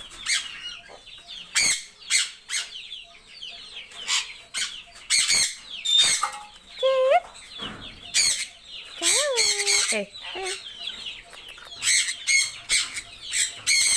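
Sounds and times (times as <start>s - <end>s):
parrots squawking: 8.1s - 13.9s.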